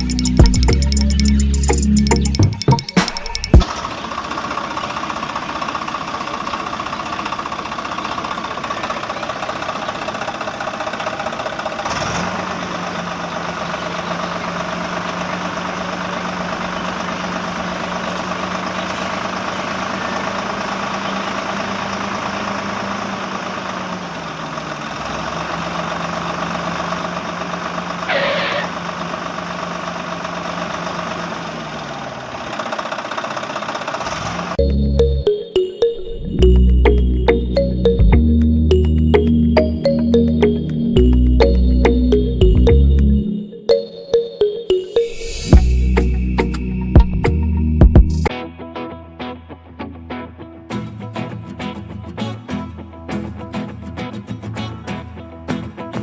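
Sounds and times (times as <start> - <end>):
tractor engine running: 0.0 - 35.3, 36.2 - 43.3, 45.5 - 48.3
low hum: 35.9 - 43.5, 45.0 - 48.3.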